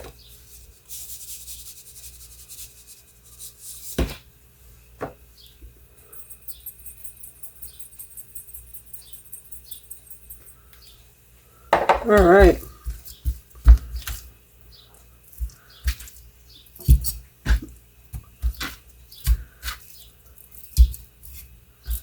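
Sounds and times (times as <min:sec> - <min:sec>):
spice shaker rattling: 0:00.3 - 0:04.0, 0:06.0 - 0:10.9, 0:19.1 - 0:22.0
shaker knocking on surface: 0:11.8 - 0:14.2.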